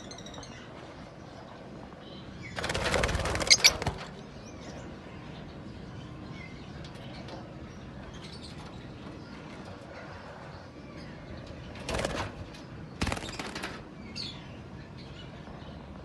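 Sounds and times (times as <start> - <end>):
wing flapping: 2.6 - 4.2, 13.0 - 13.8.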